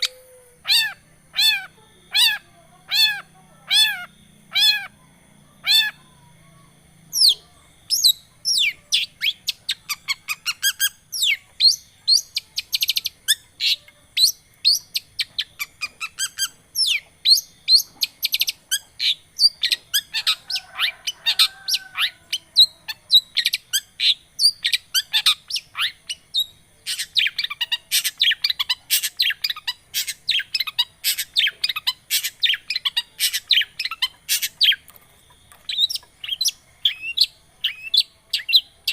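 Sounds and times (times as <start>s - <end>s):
shrike singing chirps and whistles: 7.1s - 34.9s, 35.7s - 38.9s.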